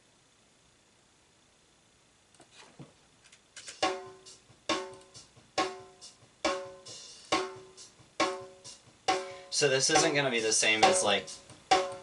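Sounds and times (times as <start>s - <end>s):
acoustic drum beat: 3.7s - 12.0s.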